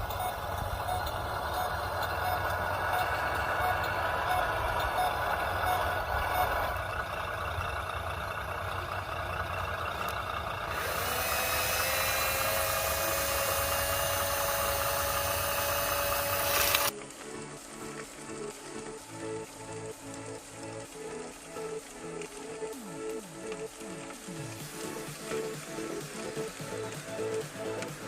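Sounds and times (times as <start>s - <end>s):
reversing beeps: 0.0s - 6.8s
hiss and rising whine: 0.0s - 28.0s
vehicle engine rumbling: 0.0s - 28.0s.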